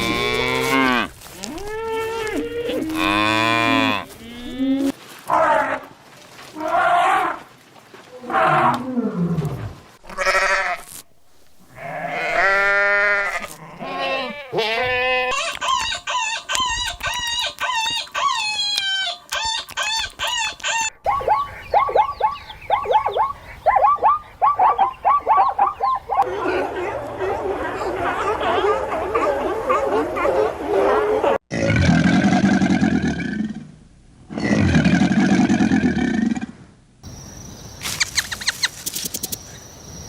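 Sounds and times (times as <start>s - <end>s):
goat bleating: 10.1s - 10.9s, 11.7s - 15.6s
fast high animal calls: 11.8s - 26.3s.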